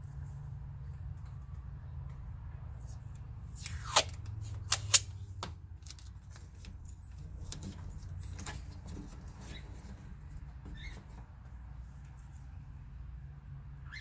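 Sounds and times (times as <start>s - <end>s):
tape pulled off roll and torn: 2.8s - 6.8s.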